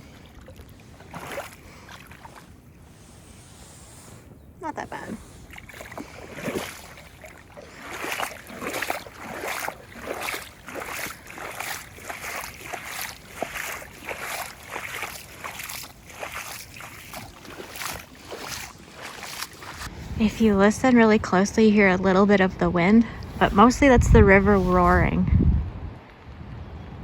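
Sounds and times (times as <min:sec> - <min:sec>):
footsteps splashing through water: 0:00.0 - 0:02.7, 0:05.4 - 0:19.9
river rushing: 0:05.7 - 0:19.9.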